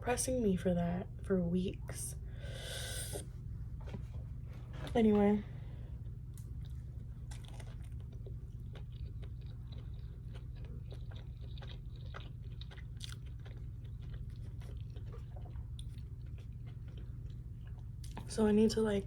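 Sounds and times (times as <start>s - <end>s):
steady low hum: 0.0s - 19.0s
person chewing crunchy food: 6.0s - 18.3s.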